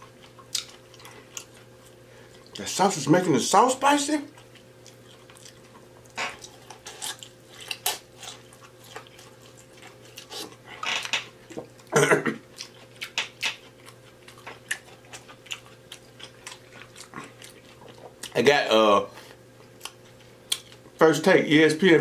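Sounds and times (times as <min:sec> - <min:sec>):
chewing food: 0:00.0 - 0:02.8, 0:04.2 - 0:18.5, 0:19.6 - 0:21.0
wet lip smacks and mouth clicks: 0:19.8 - 0:20.8.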